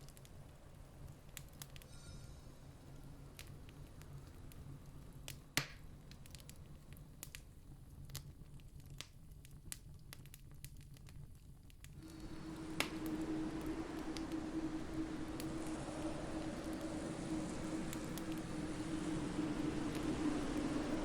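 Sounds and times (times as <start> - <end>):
campfire crackling: 0.0 - 2.0, 2.6 - 21.0
low rumble with hum: 12.0 - 21.0.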